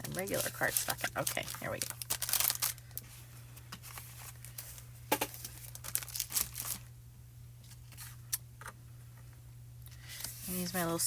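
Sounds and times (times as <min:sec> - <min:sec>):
paper rustling: 0:00.0 - 0:06.9.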